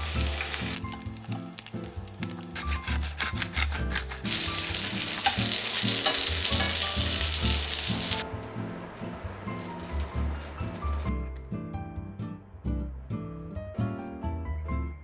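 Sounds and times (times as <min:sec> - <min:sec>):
food sizzling in a pan: 0:00.0 - 0:02.6, 0:04.2 - 0:11.0.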